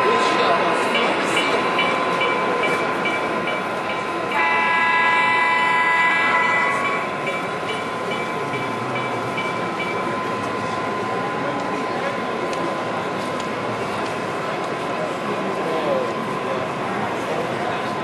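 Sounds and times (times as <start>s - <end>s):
steady high tone: 1.0s - 13.3s
diesel train horn chord: 4.3s - 7.1s.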